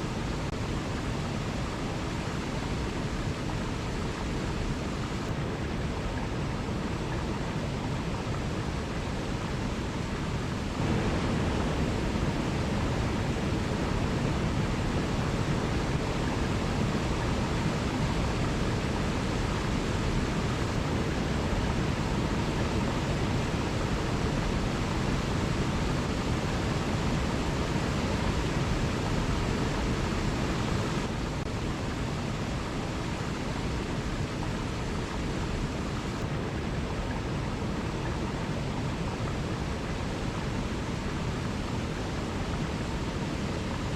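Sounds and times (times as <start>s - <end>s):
waterfall rushing: 0.0s - 43.9s.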